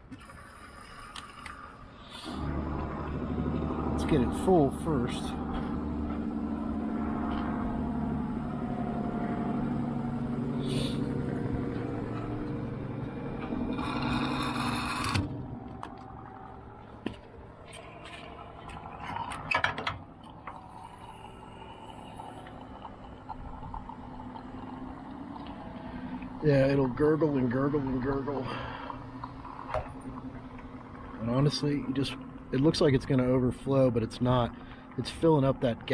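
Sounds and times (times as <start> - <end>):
fuel pump humming: 0.0 - 35.9
fuel rushing through nozzle: 0.2 - 15.8, 20.5 - 26.8
nozzle clicks and knocks: 19.2 - 20.6.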